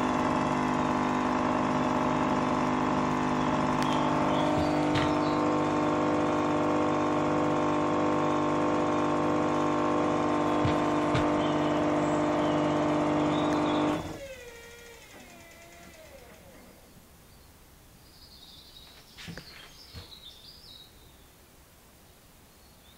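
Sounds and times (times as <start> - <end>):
washing machine spinning: 0.0 - 16.8
drum knocks: 10.5 - 11.4.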